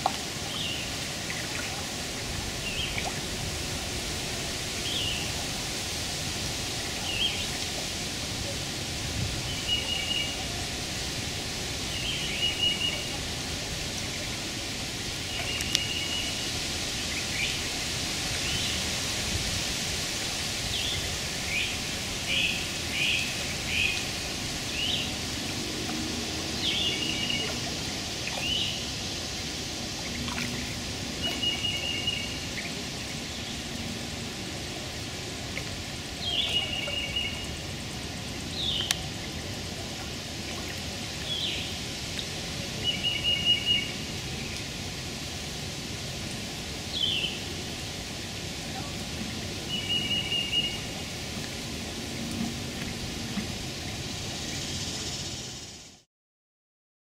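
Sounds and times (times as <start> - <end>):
running water hiss: 0.0 - 56.1.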